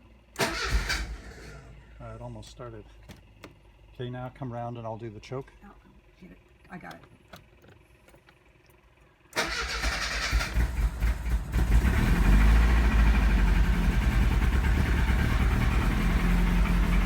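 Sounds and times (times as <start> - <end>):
engine starting and running: 0.3 - 2.2, 6.6 - 17.0.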